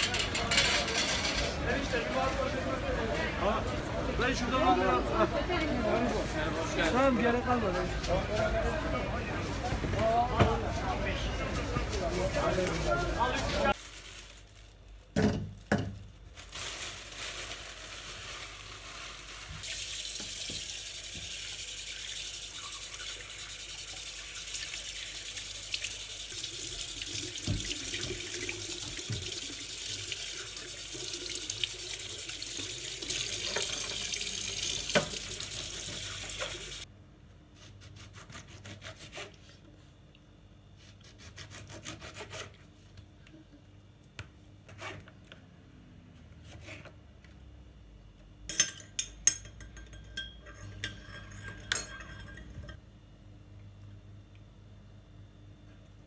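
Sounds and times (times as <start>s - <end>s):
tap running into a sink: 20.0s - 21.5s, 27.3s - 29.5s, 33.1s - 36.8s.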